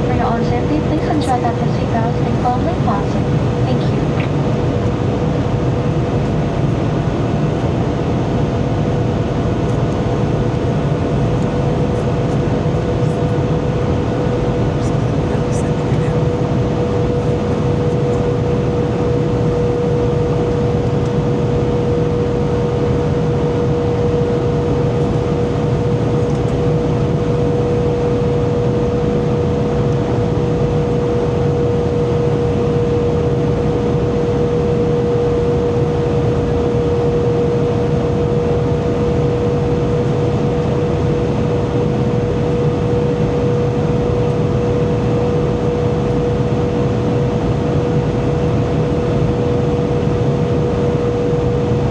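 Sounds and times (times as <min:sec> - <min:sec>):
aircraft cabin engine rush: 0:00.0 - 0:51.9
constant hum: 0:00.0 - 0:51.9.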